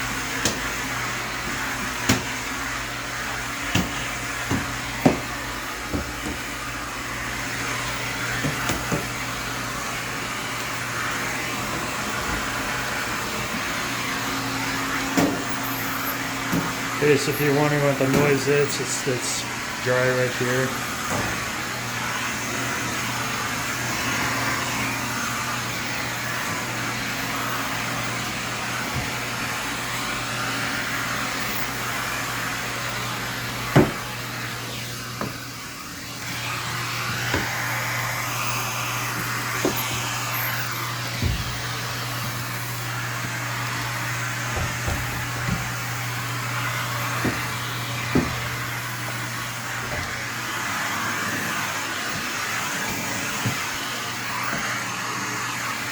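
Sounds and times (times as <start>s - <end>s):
vacuum tool knocking: 0.0s - 15.8s, 16.4s - 18.8s, 28.2s - 31.0s, 32.8s - 54.7s
vacuum suction rushing air: 0.0s - 55.9s.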